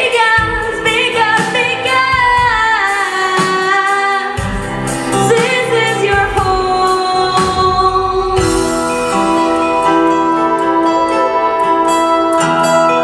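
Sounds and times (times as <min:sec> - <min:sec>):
instrumental accompaniment: 0:00.0 - 0:13.0
person singing: 0:00.0 - 0:13.0.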